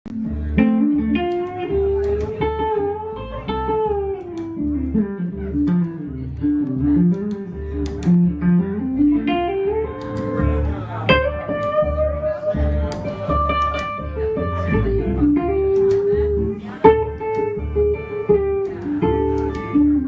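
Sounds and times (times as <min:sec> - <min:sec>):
plucked guitar melody: 0:00.1 - 0:20.0
upright bass walking line: 0:00.1 - 0:20.0.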